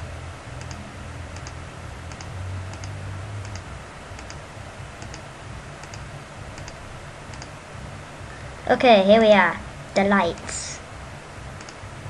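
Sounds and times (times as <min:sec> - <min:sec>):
low steady hum: 0:00.0 - 0:12.0
computer mouse double clicks: 0:06.6 - 0:07.5, 0:11.6 - 0:11.8.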